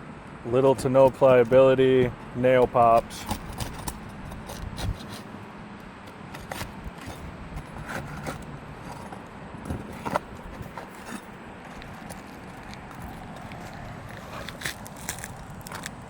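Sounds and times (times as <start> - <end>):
shingles scraping: 0.5 - 16.0
sharp clicks of nails prying: 1.0 - 4.9.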